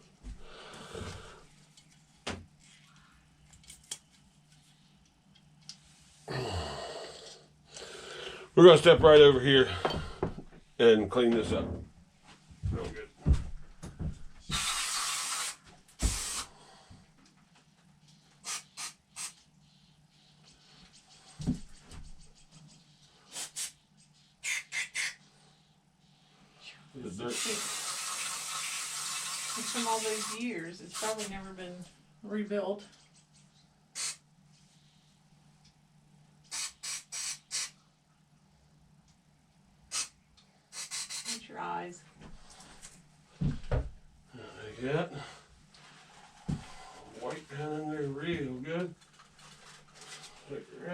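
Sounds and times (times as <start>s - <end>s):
aerosol spray hissing: 14.5s - 16.5s, 18.4s - 19.4s, 23.3s - 23.8s, 24.4s - 25.2s, 27.3s - 31.3s, 34.0s - 34.2s, 36.5s - 37.8s, 39.9s - 41.4s.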